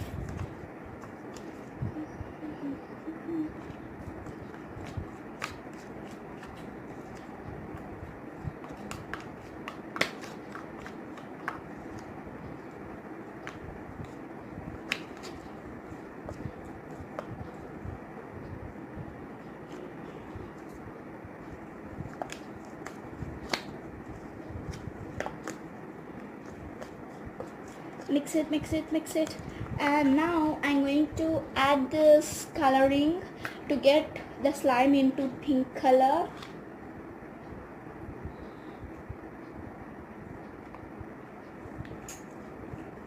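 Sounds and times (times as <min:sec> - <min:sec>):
sticky slime being stirred: 0:03.5 - 0:17.8, 0:21.4 - 0:28.4.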